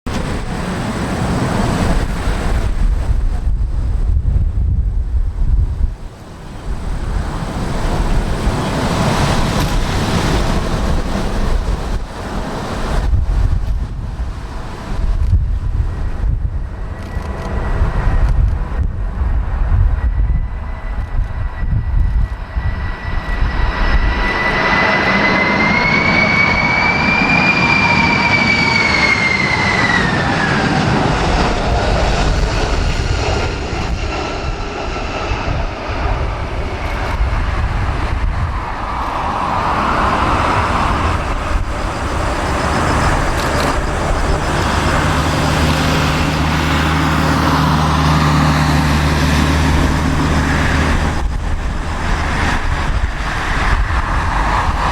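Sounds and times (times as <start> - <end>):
wind gusts buffeting microphone: 0.0 - 54.9
jet engines whining: 0.1 - 4.7, 5.3 - 54.9.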